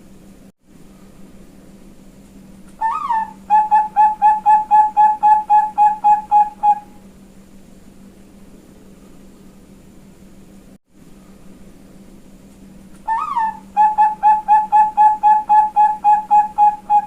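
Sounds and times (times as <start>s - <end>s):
steady low hum: 0.0s - 17.0s
dove cooing: 2.8s - 7.0s, 13.1s - 17.0s.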